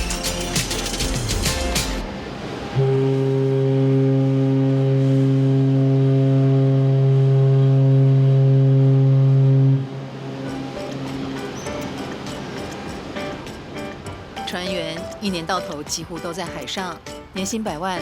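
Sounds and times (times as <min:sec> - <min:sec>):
ship's horn blast: 0:02.0 - 0:13.7.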